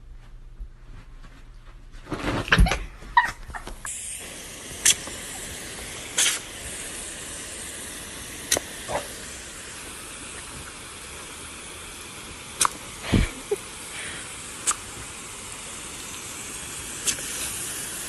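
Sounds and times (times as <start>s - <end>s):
hiss of rushing air: 3.9s - 18.0s.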